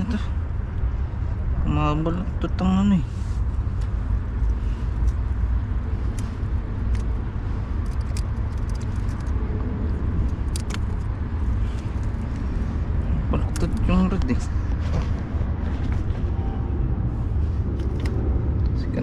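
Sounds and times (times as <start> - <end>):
wind buffeting microphone: 0.0 - 19.0
light clicks: 7.8 - 12.5.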